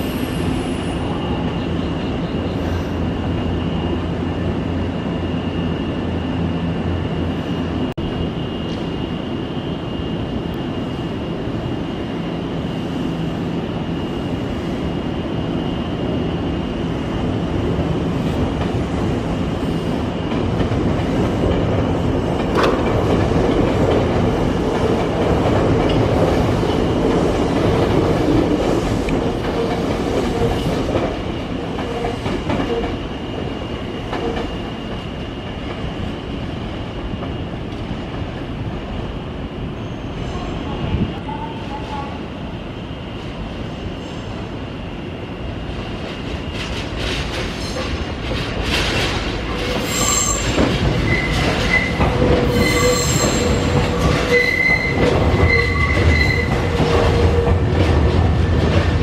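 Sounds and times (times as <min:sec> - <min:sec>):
electric train rumbling and clacking: 0:00.0 - 0:59.0.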